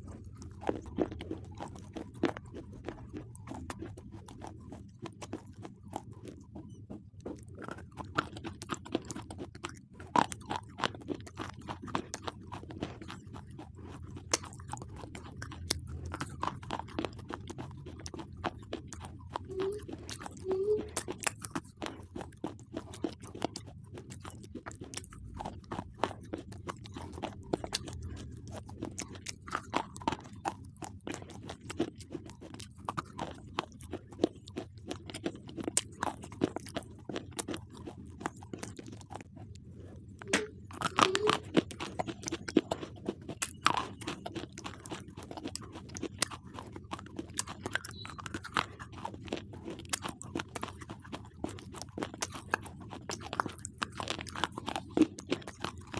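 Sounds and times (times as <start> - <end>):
person crunching while chewing: 0.0 - 55.9.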